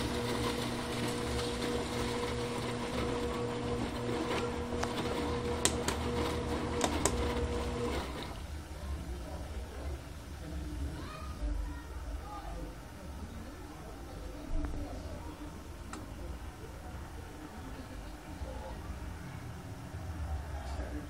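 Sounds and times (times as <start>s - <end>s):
washing machine humming: 0.0s - 9.4s.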